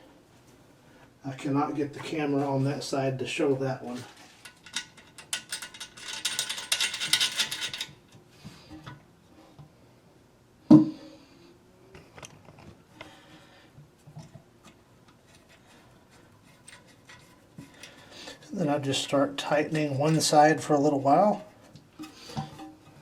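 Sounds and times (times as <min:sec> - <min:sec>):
small metal hardware clinking: 0:04.4 - 0:08.0.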